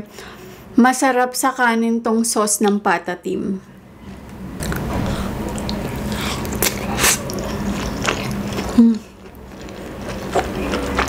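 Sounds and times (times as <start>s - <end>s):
chewing with wet mouth sounds: 5.5s - 11.0s.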